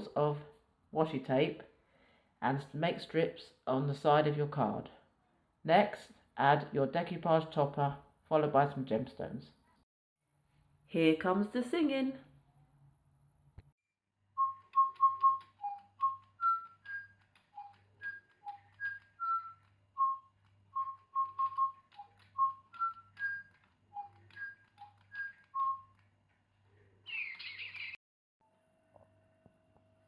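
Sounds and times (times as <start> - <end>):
person whistling a tune: 14.4 - 26.0.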